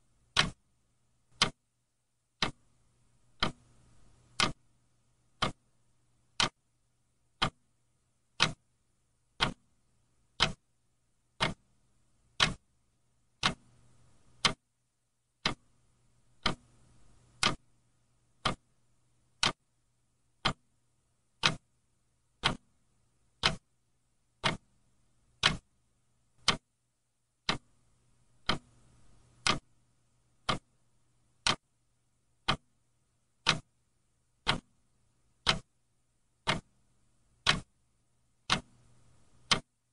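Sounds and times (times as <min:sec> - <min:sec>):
mechanical clock ticking: 0:00.3 - 0:00.6, 0:01.3 - 0:01.6, 0:02.4 - 0:02.6, 0:03.3 - 0:04.6, 0:05.3 - 0:05.7, 0:06.3 - 0:06.6, 0:07.3 - 0:07.7, 0:08.3 - 0:08.6, 0:09.3 - 0:10.6, 0:11.3 - 0:12.7, 0:13.3 - 0:14.6, 0:15.4 - 0:17.7, 0:18.3 - 0:19.6, 0:20.3 - 0:20.7, 0:21.3 - 0:21.7, 0:22.4 - 0:22.7, 0:23.3 - 0:23.7, 0:24.3 - 0:25.8, 0:26.4 - 0:26.7, 0:27.4 - 0:29.8, 0:30.4 - 0:30.8, 0:31.4 - 0:31.7, 0:32.4 - 0:32.8, 0:33.4 - 0:33.8, 0:34.4 - 0:34.8, 0:35.4 - 0:35.8, 0:36.4 - 0:36.8, 0:37.4 - 0:37.8, 0:38.4 - 0:39.8.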